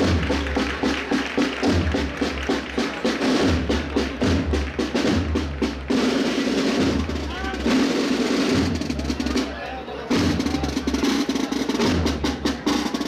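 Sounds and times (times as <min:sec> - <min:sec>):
bass drum beats: 0:00.0 - 0:07.9
rapid snare drum strokes: 0:00.0 - 0:13.0.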